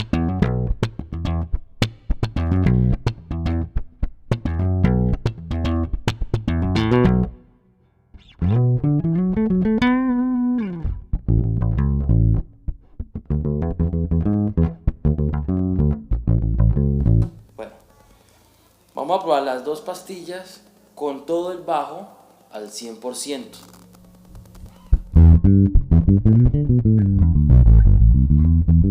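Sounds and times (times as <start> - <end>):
electric bass plucked runs: 0.0 - 7.5, 8.2 - 17.6, 23.7 - 28.9
bass note sliding with vibrato: 24.6 - 28.9.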